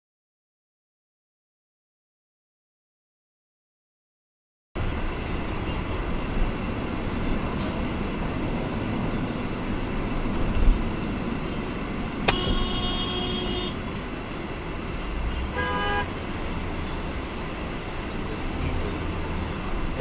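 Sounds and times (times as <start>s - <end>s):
car driving in traffic: 4.8s - 20.0s
car horn: 12.2s - 13.8s, 15.3s - 16.1s.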